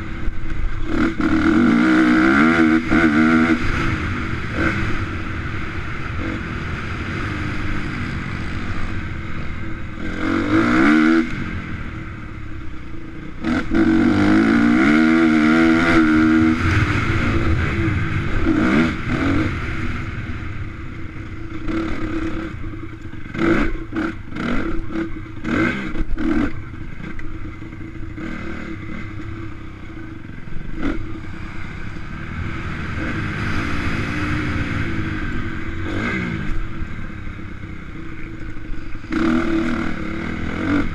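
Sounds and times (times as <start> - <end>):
motocross bike engines revving: 0.0 - 40.9.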